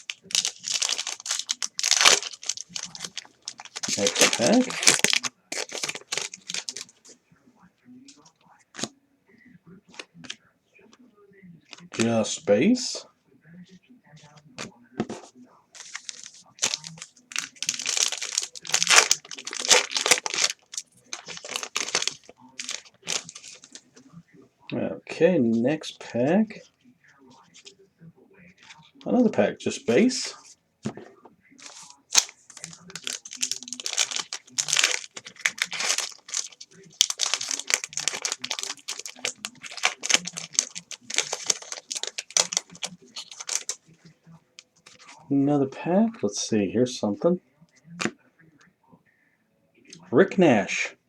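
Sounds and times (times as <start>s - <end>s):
cards being shuffled: 0.0s - 7.2s, 14.6s - 24.0s, 29.9s - 43.9s
wrapper crinkling and rustling: 0.0s - 7.2s, 15.8s - 24.0s, 28.6s - 43.9s, 44.8s - 45.3s.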